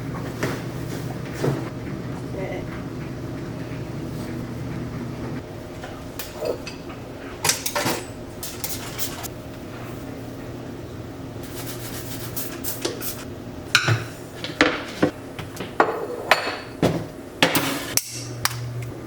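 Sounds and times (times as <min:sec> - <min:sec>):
dishes and cutlery clattering: 0:06.2 - 0:09.3.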